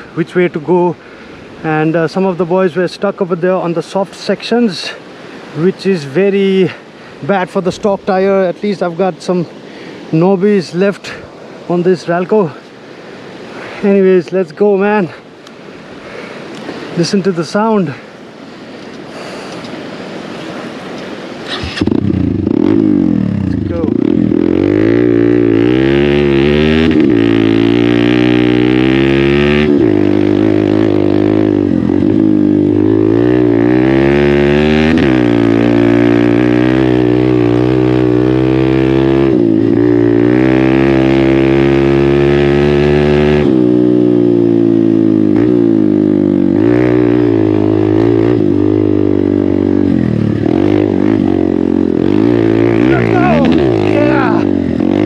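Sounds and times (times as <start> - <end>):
motorcycle engine revving while riding: 21.4 - 55.0.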